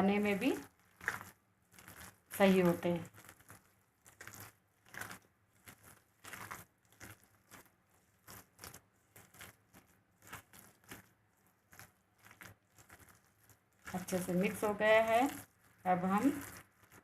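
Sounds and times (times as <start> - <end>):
batter mixing strokes: 0.0 - 17.0.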